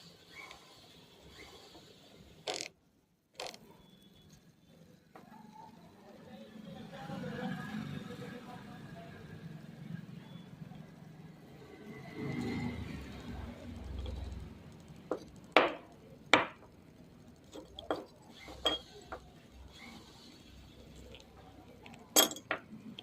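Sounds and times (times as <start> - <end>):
small hard parts clinking: 13.9 - 19.4, 20.9 - 23.0.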